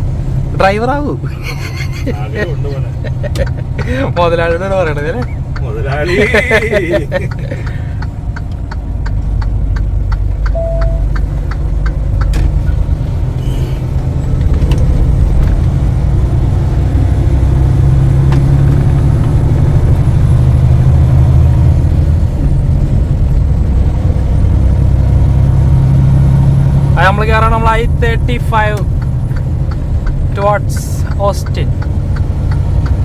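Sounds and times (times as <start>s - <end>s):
truck diesel engine running: 0.0s - 33.0s
even ticks: 7.3s - 12.4s, 28.8s - 33.0s.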